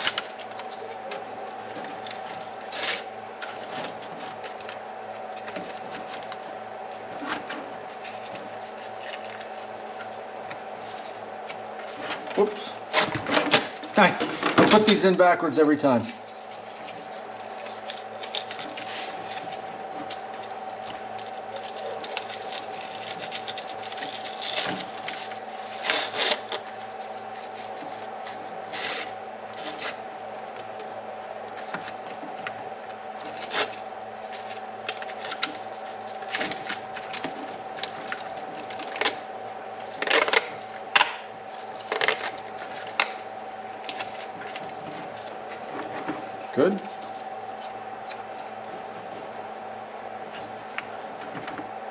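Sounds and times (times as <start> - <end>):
faint steady hum: 0.0 - 51.9.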